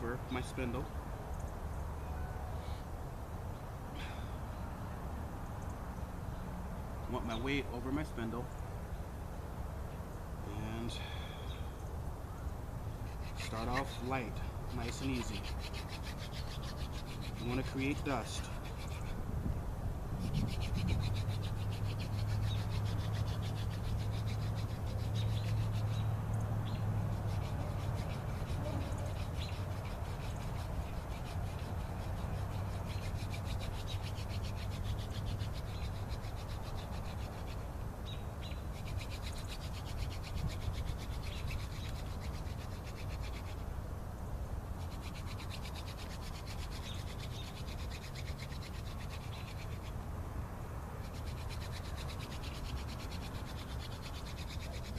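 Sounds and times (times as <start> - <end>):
hand drill rubbing wood: 13.1 - 19.2, 20.2 - 25.9, 27.1 - 37.7.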